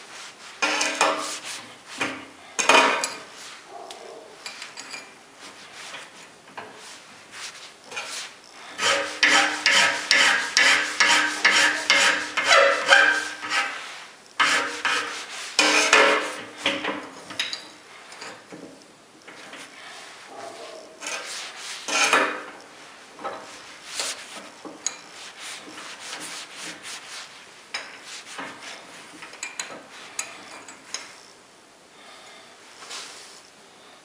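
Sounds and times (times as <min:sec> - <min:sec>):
hand file scraping metal: 0:07.9 - 0:16.4, 0:21.0 - 0:22.4.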